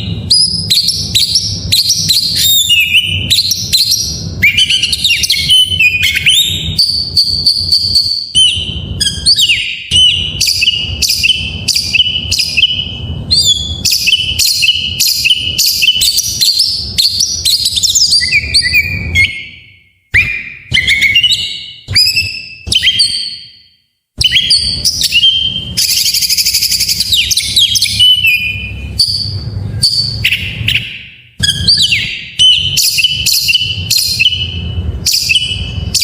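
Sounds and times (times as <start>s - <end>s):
bird singing whistles and trills: 0.0s - 36.0s.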